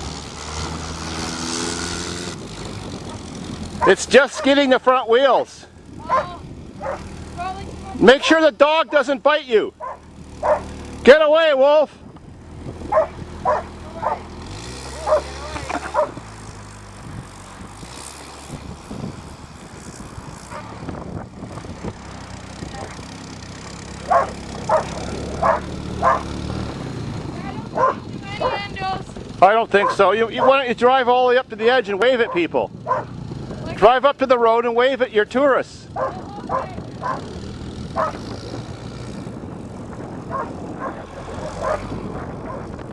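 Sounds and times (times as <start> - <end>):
vehicle engine running: 0.0 - 42.9
dog barking: 3.8 - 4.6, 6.1 - 7.1, 9.8 - 10.7, 12.9 - 14.3, 15.0 - 15.3, 15.9 - 16.2, 24.1 - 26.3, 27.7 - 28.6, 29.8 - 30.6, 32.3 - 33.1, 36.0 - 37.3, 38.0 - 38.2, 40.3 - 42.7.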